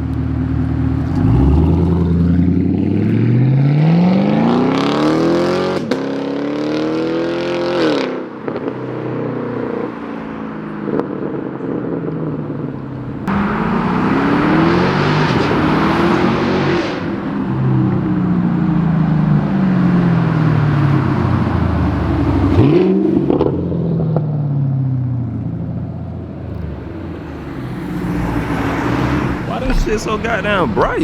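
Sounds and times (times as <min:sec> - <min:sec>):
car engine accelerating hard: 0:00.3 - 0:08.7, 0:13.2 - 0:24.0, 0:26.4 - 0:31.0.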